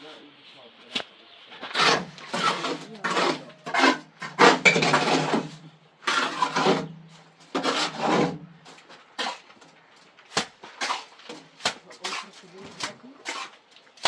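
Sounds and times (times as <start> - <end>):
hard objects clattering: 1.6 - 6.9.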